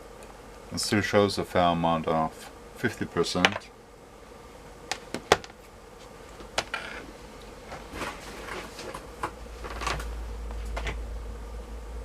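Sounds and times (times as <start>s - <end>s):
low hum: 9.1s - 12.0s.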